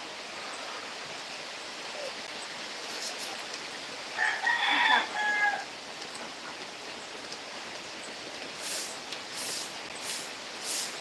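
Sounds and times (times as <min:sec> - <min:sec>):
hiss of falling rain: 0:00.0 - 0:11.0
rooster crowing: 0:04.2 - 0:05.7.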